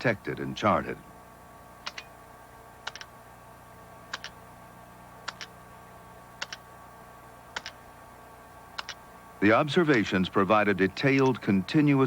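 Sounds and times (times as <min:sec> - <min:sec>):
faint steady hum: 0:00.0 - 0:12.0
sharp double clicks: 0:01.8 - 0:02.1, 0:02.8 - 0:03.1, 0:04.1 - 0:04.4, 0:05.3 - 0:05.5, 0:06.4 - 0:06.6, 0:07.6 - 0:07.8, 0:08.8 - 0:09.0.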